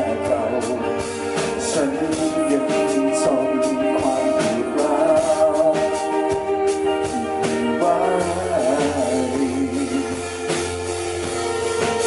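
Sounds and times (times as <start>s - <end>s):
person singing: 0.0s - 12.0s
rock band playing: 0.0s - 12.0s.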